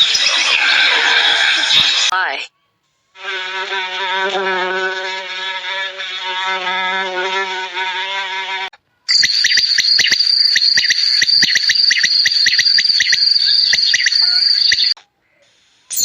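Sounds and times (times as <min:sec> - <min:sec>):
insect high pulsing trill: 0:09.1 - 0:15.0.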